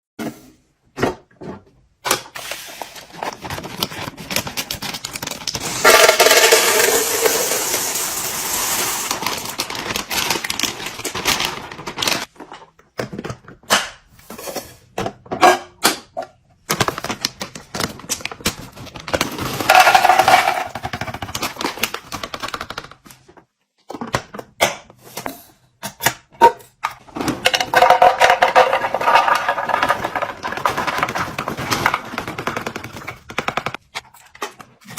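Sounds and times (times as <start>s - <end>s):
packages tapping and clattering: 3.0s - 13.6s, 15.0s - 24.4s, 27.0s - 34.9s.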